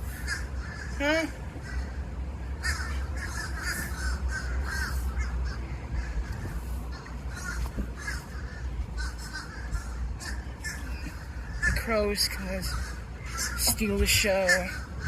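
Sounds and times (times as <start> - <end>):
low rumble: 0.0 - 12.0
crows cawing: 0.0 - 15.0.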